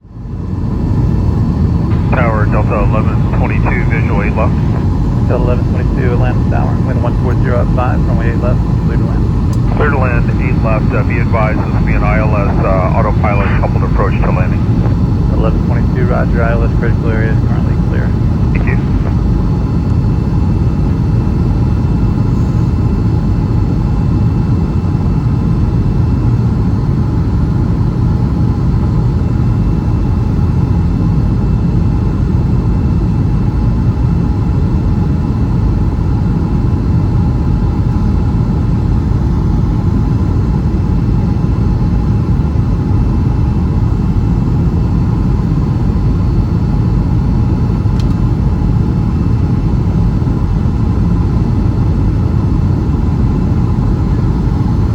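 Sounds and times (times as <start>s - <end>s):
jet engines and airflow roar: 0.0s - 54.9s
faint whining tones: 0.7s - 23.0s.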